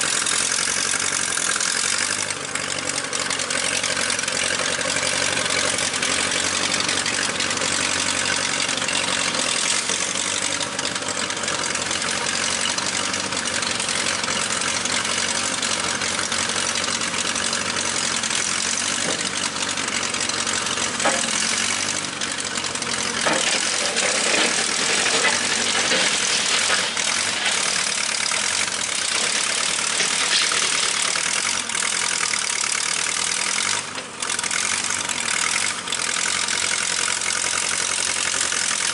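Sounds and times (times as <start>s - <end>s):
tractor engine running: 0.0s - 38.9s
knocks and clanks: 20.9s - 21.5s, 23.2s - 27.8s.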